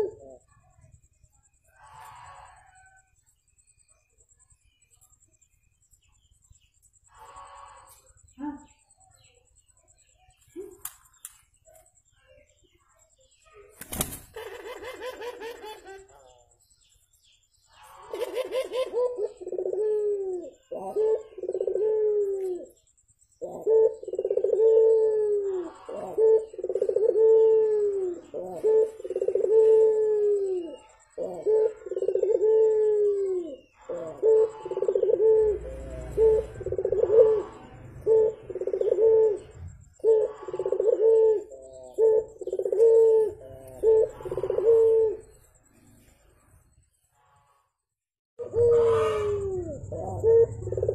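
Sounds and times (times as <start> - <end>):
dove cooing: 0.0 - 0.9, 14.3 - 16.1, 17.9 - 45.4, 48.4 - 50.9.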